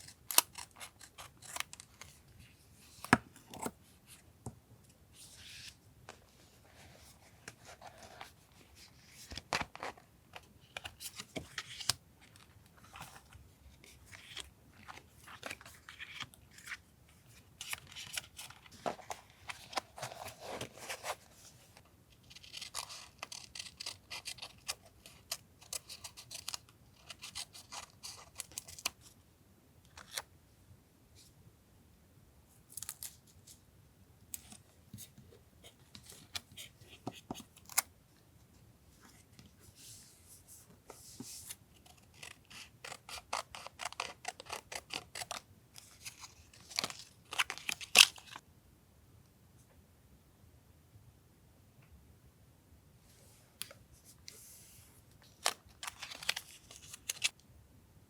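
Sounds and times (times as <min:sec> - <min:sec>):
scissors cutting paper: 0:42.2 - 0:45.4.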